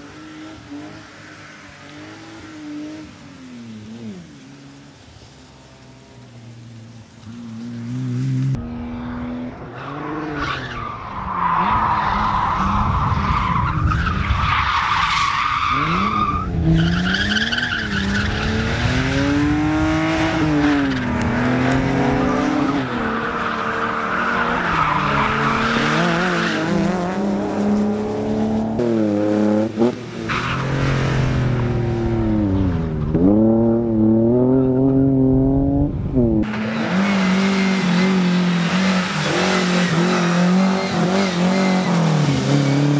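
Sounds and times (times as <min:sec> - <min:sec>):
car engine revving: 0:06.4 - 0:13.0, 0:15.6 - 0:42.9.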